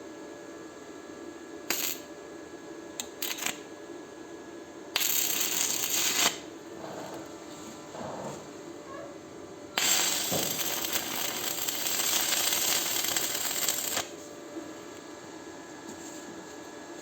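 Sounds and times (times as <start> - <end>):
arc welding hiss: 1.7 - 2.1, 3.0 - 3.7, 4.9 - 6.5, 9.8 - 14.1.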